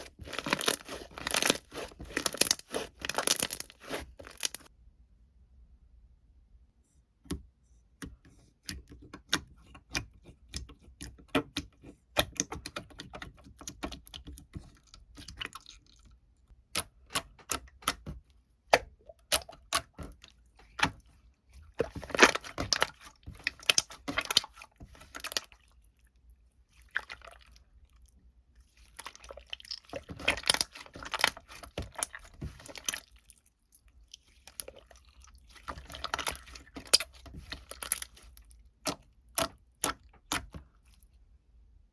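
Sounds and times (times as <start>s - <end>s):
rustling and crinkling: 0.0s - 4.7s, 20.5s - 25.5s, 28.6s - 33.4s, 34.1s - 39.1s.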